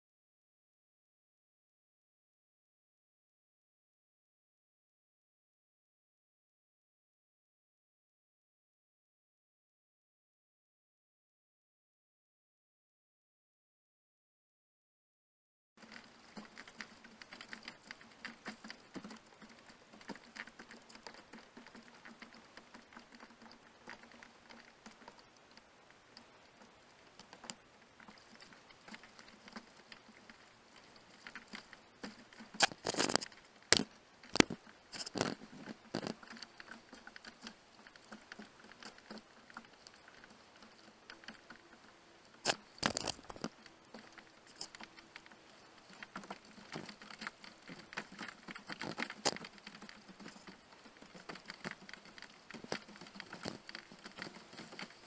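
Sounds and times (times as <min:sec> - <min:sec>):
small clicks and crackles: 0:15.8 - 0:55.0.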